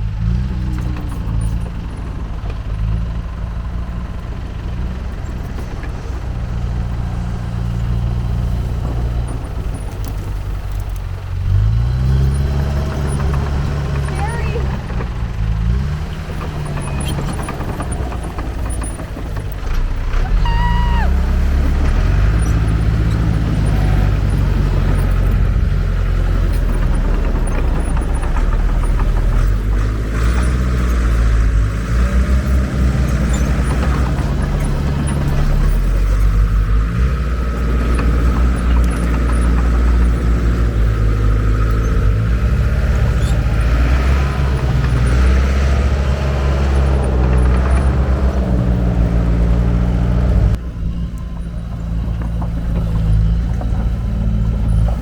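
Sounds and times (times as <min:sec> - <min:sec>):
diesel engine revving under load: 0:00.0 - 0:55.0
high squeal: 0:20.1 - 0:24.4.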